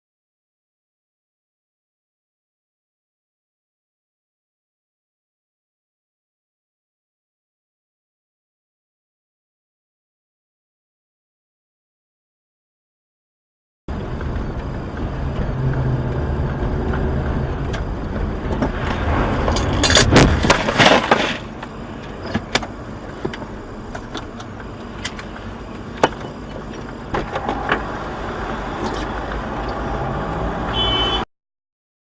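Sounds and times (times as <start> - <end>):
car engine and road noise: 13.9 - 31.3
collision bangs and crunches: 18.6 - 21.6.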